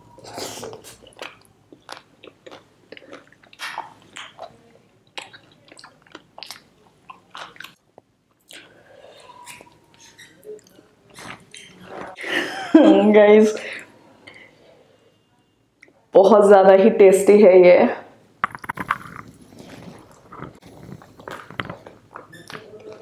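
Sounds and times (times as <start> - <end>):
close-miked chewing: 0.1 - 12.1, 18.6 - 23.0.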